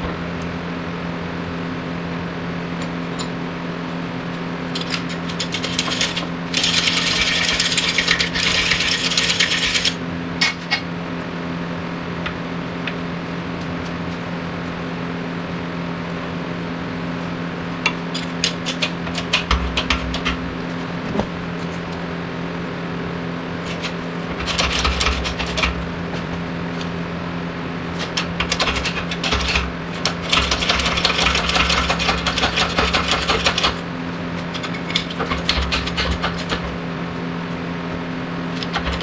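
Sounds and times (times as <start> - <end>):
steady workshop hum: 0.0 - 39.0
metallic clicking and rattling: 4.7 - 10.0.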